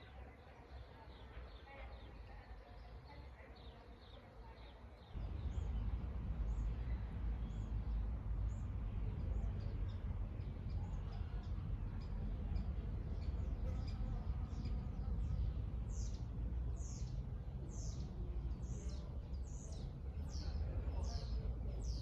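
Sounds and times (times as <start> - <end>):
small birds chirping: 0.0 - 22.0
steady low rumble: 5.2 - 22.0.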